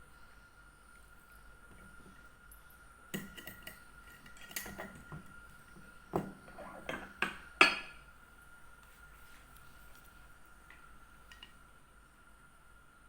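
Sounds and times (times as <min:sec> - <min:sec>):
dishes and utensils clinking: 0:03.2 - 0:05.2, 0:06.1 - 0:08.0.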